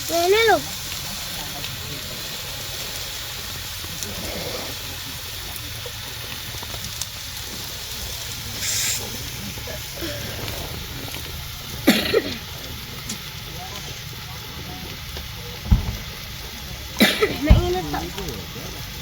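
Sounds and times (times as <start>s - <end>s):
food sizzling on a grill: 0.0s - 19.0s
person coughing: 11.9s - 12.4s, 17.0s - 17.8s.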